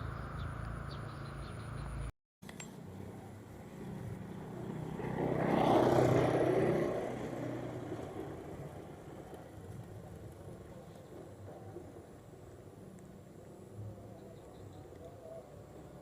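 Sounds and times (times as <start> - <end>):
motor vehicle passing by: 0.0 - 2.1, 2.8 - 12.0.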